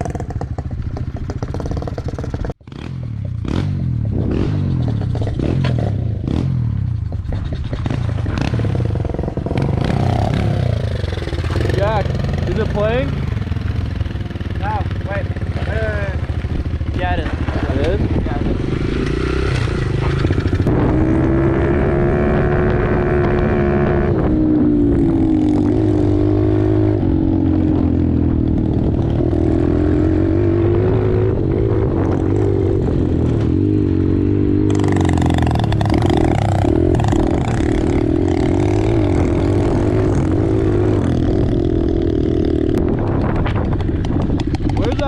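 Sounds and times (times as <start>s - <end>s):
pit bike engine running: 0.0s - 45.0s
wind noise rushing: 15.9s - 45.0s.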